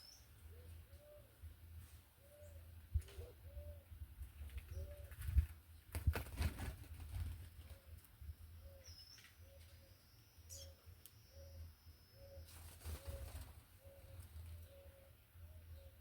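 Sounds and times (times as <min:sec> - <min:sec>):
high bird chirp: 0:00.0 - 0:00.3, 0:08.7 - 0:15.1
dove cooing: 0:00.5 - 0:01.3, 0:12.2 - 0:15.9.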